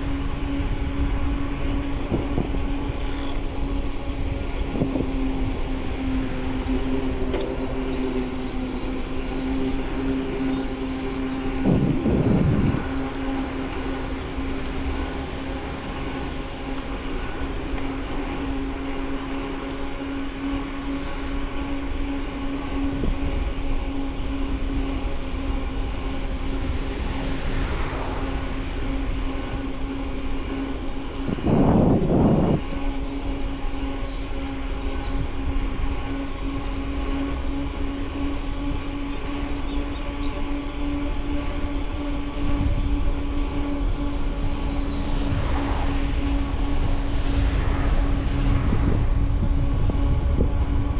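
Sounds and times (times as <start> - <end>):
mechanical hum: 0.0 - 50.9
rushing noise: 1.9 - 19.5, 25.4 - 39.2, 41.1 - 50.9.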